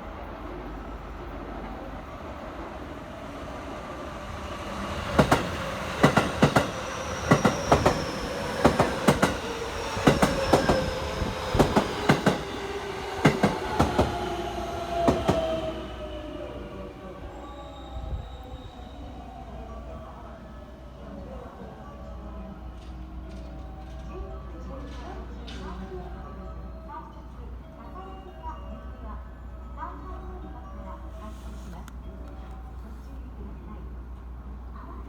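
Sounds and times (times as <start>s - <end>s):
train wheels clacking over rail joints: 5.2s - 12.6s, 13.2s - 14.2s.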